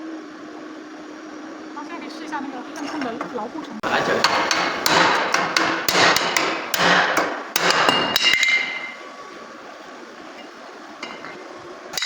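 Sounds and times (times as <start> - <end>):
hammer striking steel: 4.2 - 9.0, 11.0 - 11.4
metallic ring: 7.8 - 9.0, 10.4 - 11.4.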